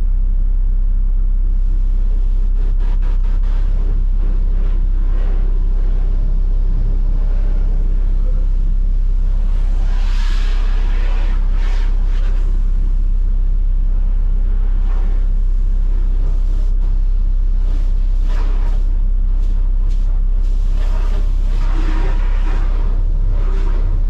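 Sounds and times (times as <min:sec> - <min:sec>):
heavy truck engine droning: 0:03.7 - 0:13.3.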